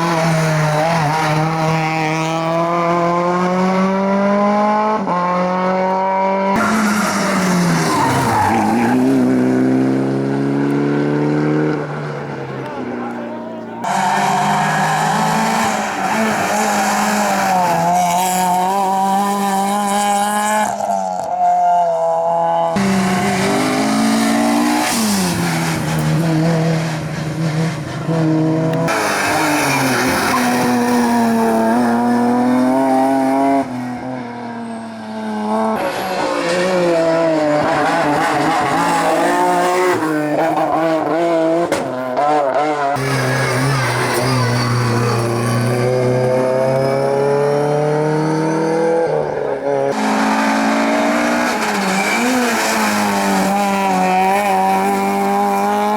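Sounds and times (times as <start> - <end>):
race car engines revving: 0.0 - 55.9
tyres squealing: 6.6 - 9.3, 12.4 - 18.6, 43.0 - 54.3.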